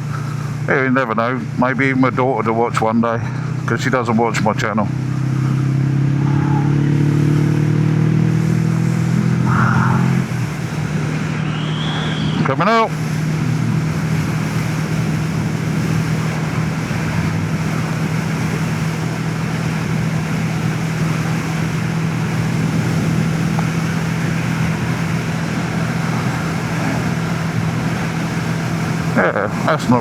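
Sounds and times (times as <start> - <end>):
motorcycle engine droning: 0.0 - 30.0
wind rushing over microphone: 4.7 - 30.0.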